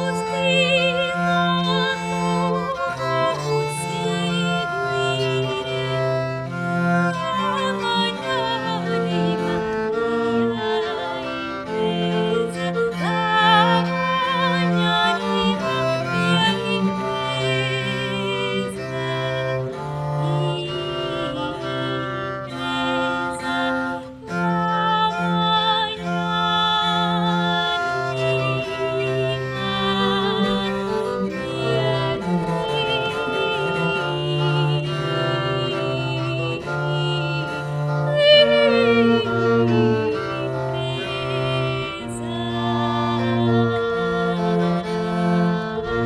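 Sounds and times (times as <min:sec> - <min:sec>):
acoustic early music trio: 0:00.0 - 0:46.0.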